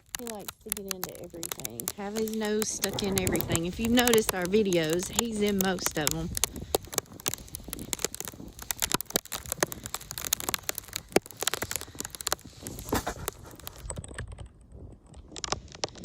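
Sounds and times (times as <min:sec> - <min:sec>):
footsteps crunching in snow: 0:00.8 - 0:13.7.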